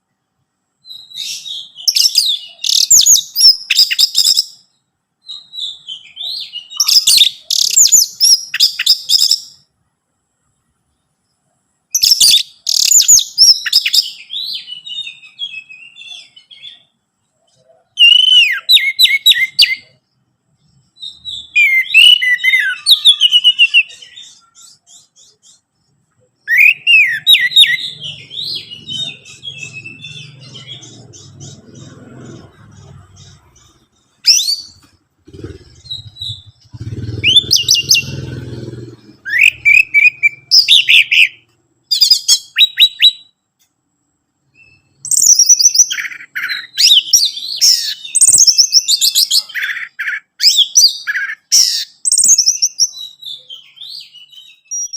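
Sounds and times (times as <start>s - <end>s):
thrush singing: 27.6s - 41.2s.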